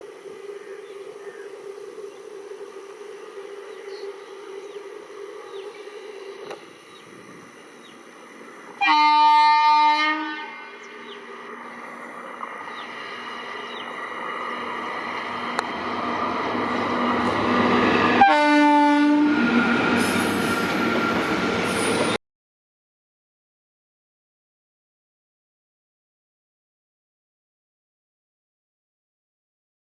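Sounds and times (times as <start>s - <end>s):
train running noise: 0.0s - 22.2s
train horn blasts: 8.8s - 11.0s, 18.0s - 19.6s.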